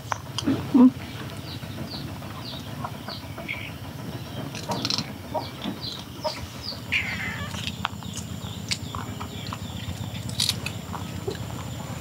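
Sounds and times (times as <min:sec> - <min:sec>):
birds chirping: 0:00.0 - 0:12.0
harsh bird call: 0:05.4 - 0:10.0.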